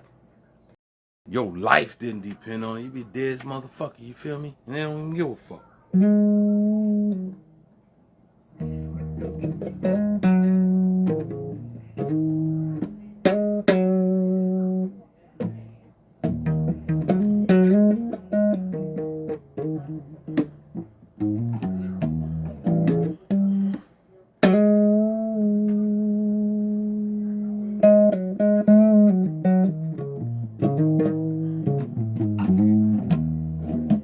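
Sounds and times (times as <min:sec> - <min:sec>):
electric bass guitar plucked: 0:06.0 - 0:07.6, 0:08.6 - 0:23.8, 0:24.4 - 0:34.0.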